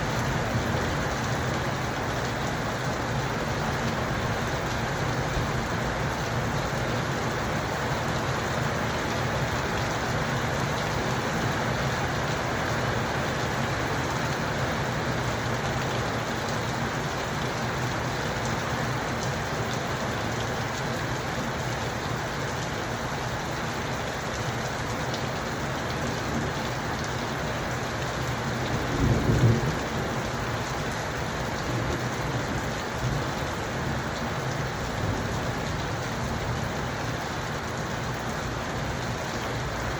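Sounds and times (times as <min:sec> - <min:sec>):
rain falling: 0:00.0 - 0:39.9
thunder rumble: 0:28.8 - 0:30.4.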